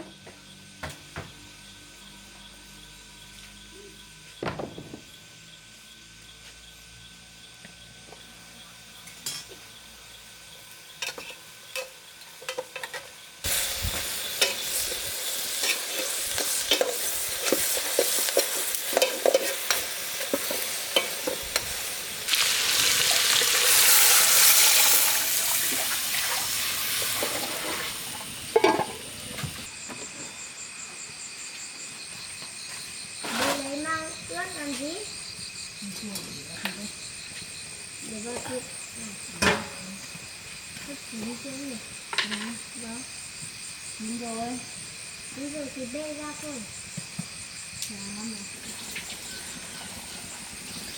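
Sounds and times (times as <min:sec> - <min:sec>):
food sizzling in a hot pan: 0:08.8 - 0:29.7, 0:37.0 - 0:50.9.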